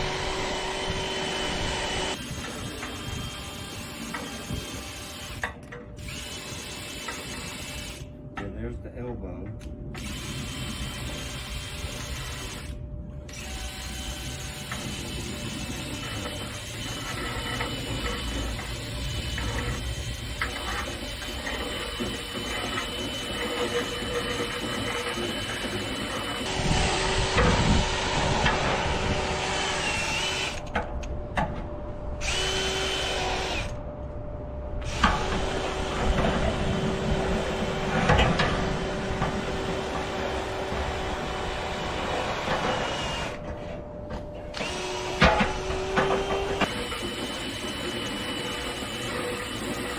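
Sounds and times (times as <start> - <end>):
power drill spinning brush in duct: 10.0 - 30.6.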